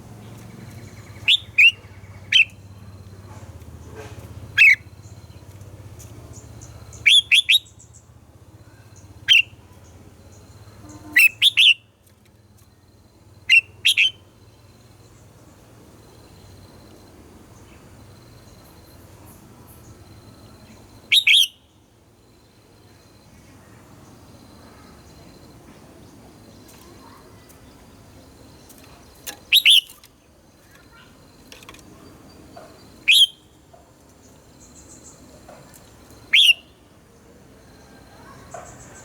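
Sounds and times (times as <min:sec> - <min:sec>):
faint bird chirps: 0:00.2 - 0:11.9, 0:17.6 - 0:36.9, 0:37.6 - 0:39.0
bird chirping and singing: 0:00.3 - 0:02.6, 0:28.8 - 0:30.1, 0:33.1 - 0:33.4
bird calls sweeping upward: 0:00.8 - 0:02.6, 0:33.1 - 0:33.4, 0:36.3 - 0:36.7.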